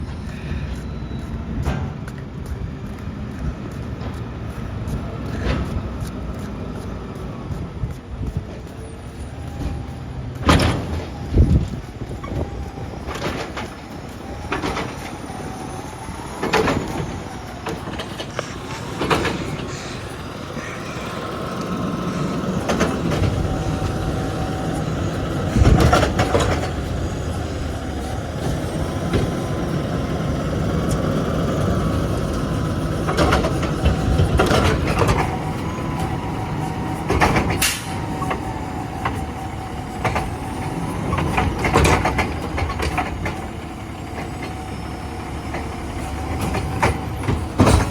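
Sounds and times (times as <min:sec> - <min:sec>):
steady whine: 0:00.0 - 0:41.6
garbage truck engine running: 0:00.0 - 0:47.9
metal clanks and bangs: 0:46.4 - 0:47.9.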